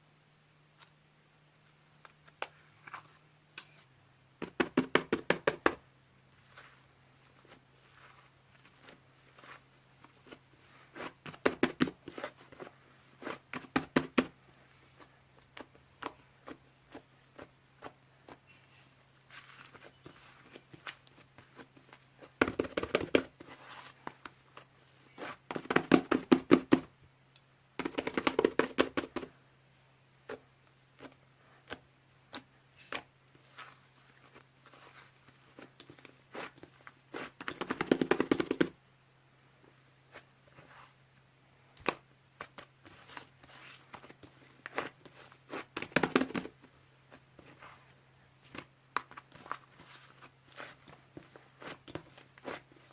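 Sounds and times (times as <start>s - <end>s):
faint steady hum: 0.0s - 52.9s.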